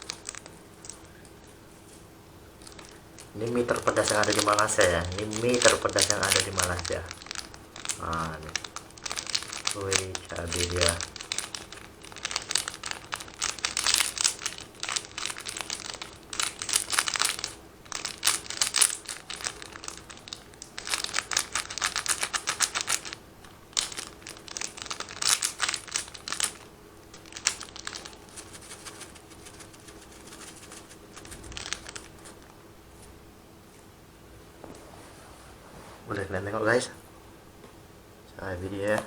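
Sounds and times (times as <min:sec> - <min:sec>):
plastic sachets crinkling: 0:00.0 - 0:33.2.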